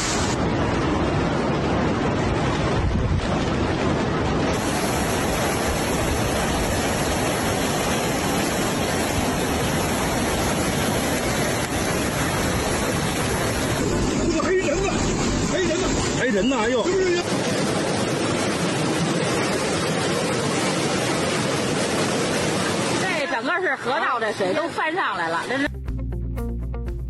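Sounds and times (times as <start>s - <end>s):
wind noise on microphone: 0.0s - 16.2s
floodwater rushing: 0.0s - 25.7s.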